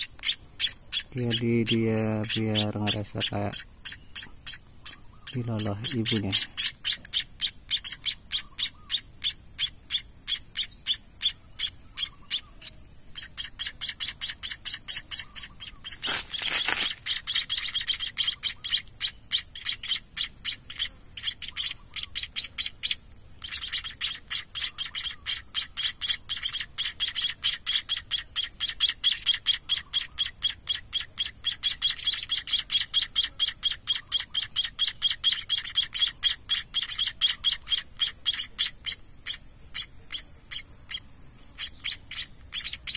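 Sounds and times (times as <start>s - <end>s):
nestlings begging chirps: 0.0s - 42.9s
short rustle: 15.9s - 17.1s.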